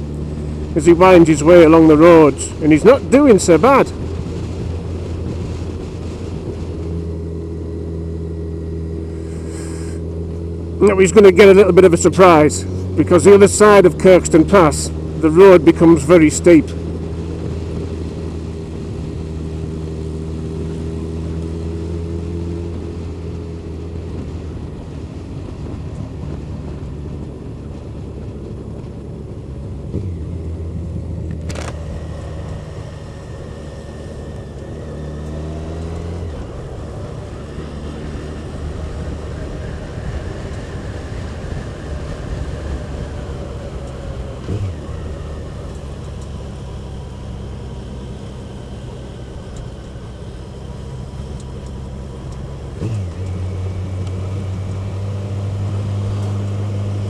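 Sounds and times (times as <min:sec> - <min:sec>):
motorcycle engine running: 0:00.0 - 0:57.0
wind rush: 0:00.5 - 0:07.8.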